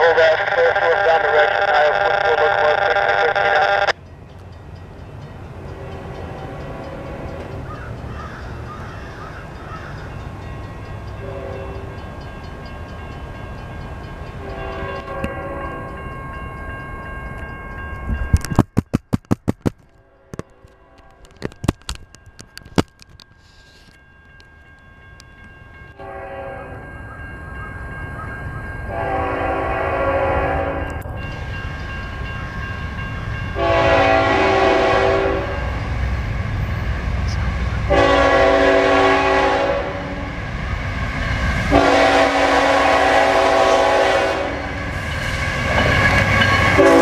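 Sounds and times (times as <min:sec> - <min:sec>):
train rumbling: 0:00.0 - 0:47.0
train horn: 0:05.7 - 0:07.6, 0:11.2 - 0:12.0, 0:14.4 - 0:16.0, 0:26.0 - 0:26.9, 0:28.9 - 0:31.0, 0:33.6 - 0:36.0, 0:37.3 - 0:40.4, 0:41.7 - 0:45.0, 0:45.8 - 0:47.0
sharp clicks and knocks: 0:18.3 - 0:20.6, 0:21.2 - 0:23.3.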